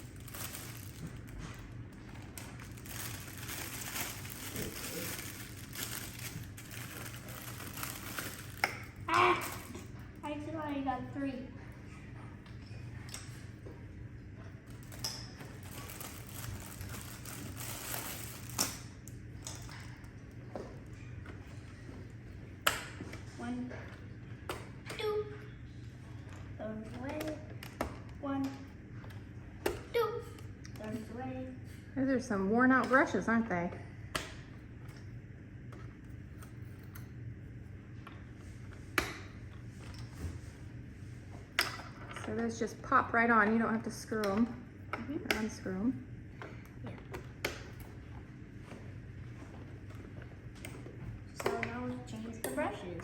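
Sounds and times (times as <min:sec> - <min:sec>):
faint low hum: 0:00.0 - 0:53.0.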